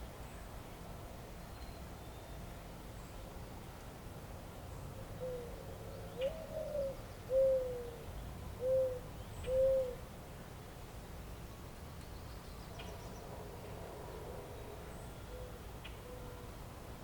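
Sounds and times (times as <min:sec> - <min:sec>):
dove cooing: 0:05.2 - 0:05.6, 0:06.2 - 0:08.0, 0:08.6 - 0:10.0.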